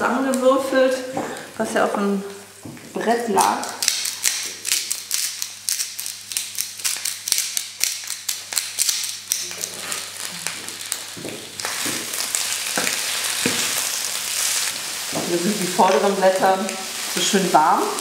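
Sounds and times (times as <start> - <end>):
vegetables sizzling in frying pan: 8.0 - 18.0.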